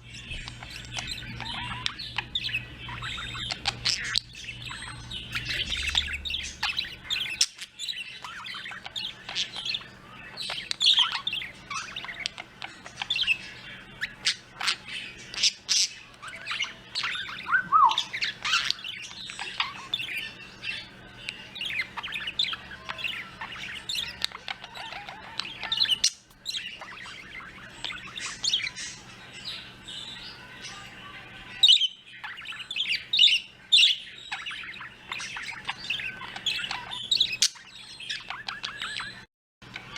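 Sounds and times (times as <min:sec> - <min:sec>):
small birds chirping: 0:00.0 - 0:39.9
falling whistled notes: 0:17.4 - 0:18.1.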